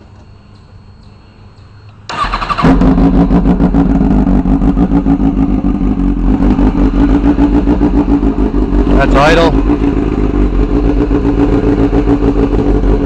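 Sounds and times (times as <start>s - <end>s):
motorcycle engine cranking: 2.1s - 3.6s
motorcycle engine idling loudly: 2.3s - 13.0s.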